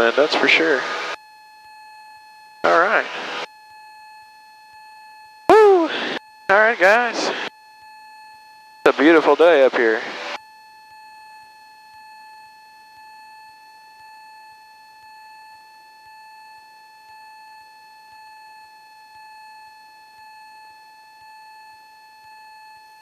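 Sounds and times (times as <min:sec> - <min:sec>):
electronic whine: 0:05.5 - 0:08.0.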